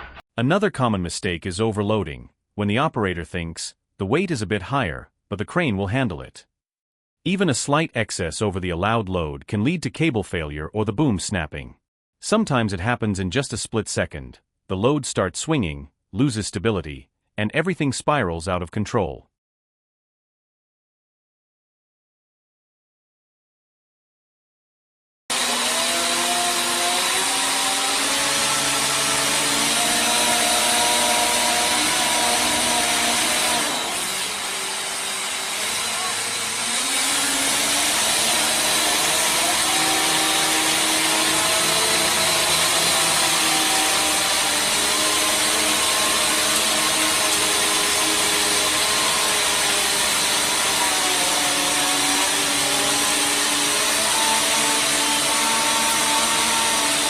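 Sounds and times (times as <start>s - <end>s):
loud machinery noise with whining: 25.3s - 40.5s.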